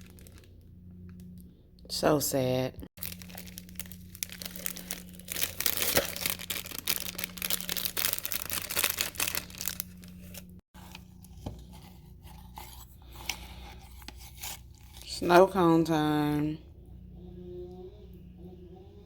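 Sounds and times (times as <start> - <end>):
plastic packaging crinkling and tearing: 0.0 - 0.6, 3.0 - 15.2
low hum: 0.0 - 19.0.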